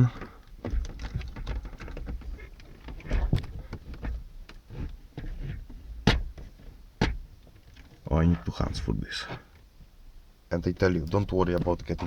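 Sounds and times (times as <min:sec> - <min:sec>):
handling knocks: 0:05.2 - 0:07.3, 0:10.8 - 0:12.0.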